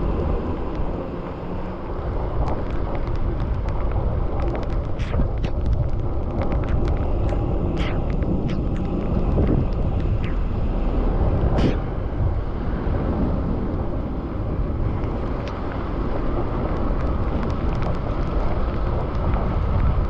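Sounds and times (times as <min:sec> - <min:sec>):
bicycle road noise: 0:00.0 - 0:20.0
wind buffeting microphone: 0:00.0 - 0:20.0
sharp ticks and clicks: 0:02.4 - 0:10.7, 0:11.3 - 0:11.9, 0:16.7 - 0:20.0.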